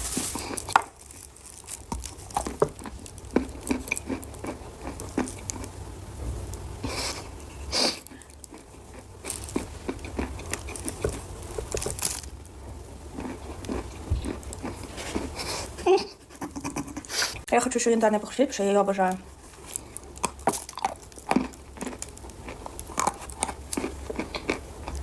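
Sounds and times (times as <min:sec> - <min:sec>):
chalk crunching while chewed: 0:00.1 - 0:05.7, 0:06.8 - 0:12.3, 0:13.1 - 0:17.1, 0:19.4 - 0:25.0.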